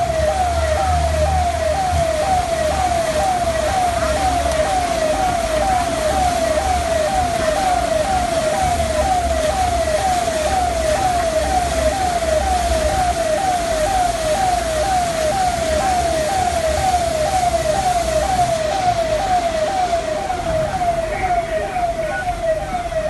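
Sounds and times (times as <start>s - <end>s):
siren falling tone: 0.0s - 23.0s.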